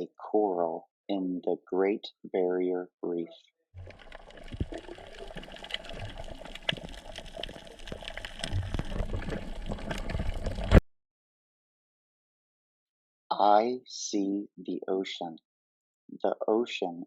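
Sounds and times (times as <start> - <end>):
water bubbling and sloshing: 3.8 - 10.8.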